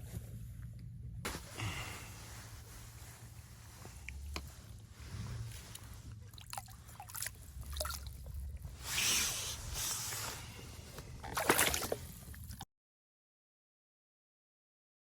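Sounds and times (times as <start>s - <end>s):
lake water sloshing and splashing: 5.0s - 12.6s.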